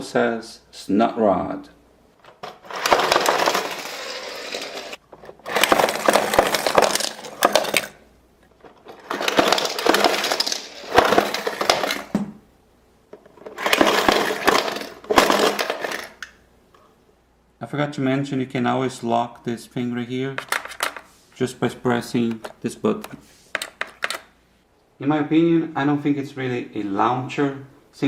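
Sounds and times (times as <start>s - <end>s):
toy car launcher clicking and rattling: 2.3s - 8.0s, 8.6s - 12.1s, 13.2s - 16.4s.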